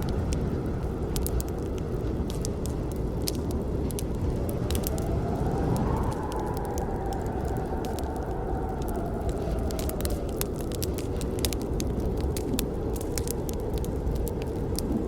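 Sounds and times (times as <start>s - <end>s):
low noise of fire: 0.0s - 15.0s.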